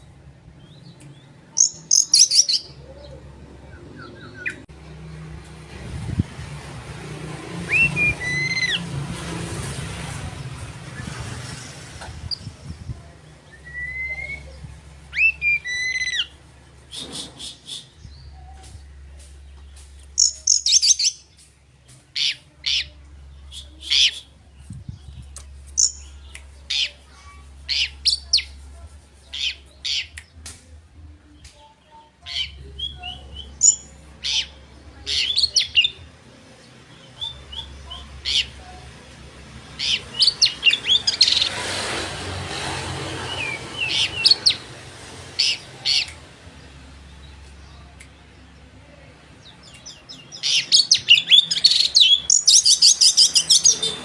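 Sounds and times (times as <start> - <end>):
bird singing whistles and chirps: 13.5 - 16.3.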